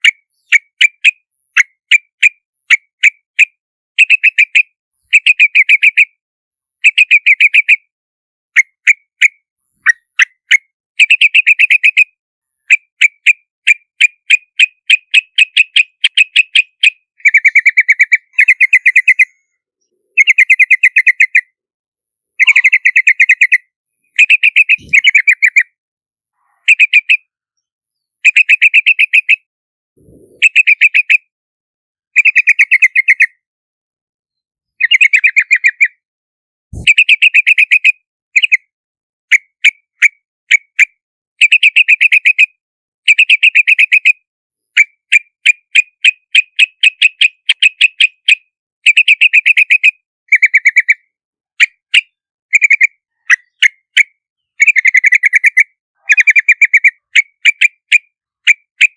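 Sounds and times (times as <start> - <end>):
bulbul calling: 12.7 - 21.6, 22.4 - 25.8, 26.4 - 31.3, 32.2 - 33.4, 34.7 - 36.0, 36.8 - 38.6, 51.6 - 54.0, 54.6 - 58.9.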